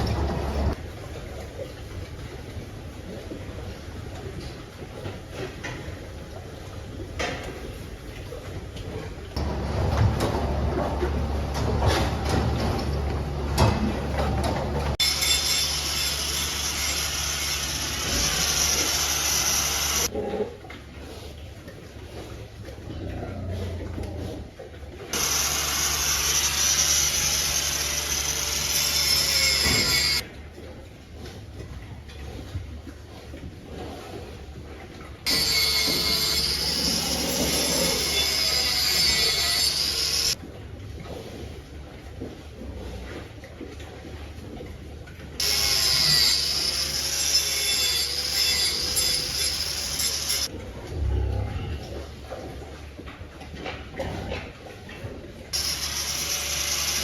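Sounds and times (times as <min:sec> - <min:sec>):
loud steady machine noise: 0:14.6 - 0:20.1, 0:25.2 - 0:30.2, 0:55.6 - 0:57.0.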